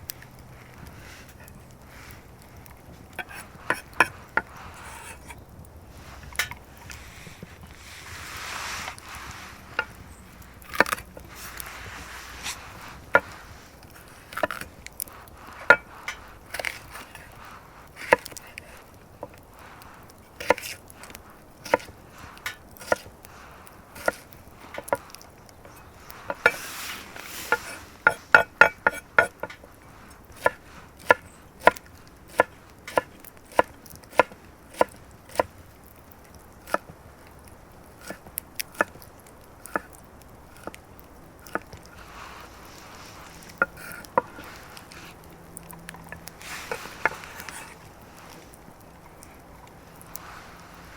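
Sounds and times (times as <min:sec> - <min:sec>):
blade chopping wood: 0:10.6 - 0:11.7, 0:20.4 - 0:20.8, 0:21.6 - 0:23.2, 0:24.0 - 0:25.1, 0:30.4 - 0:35.5.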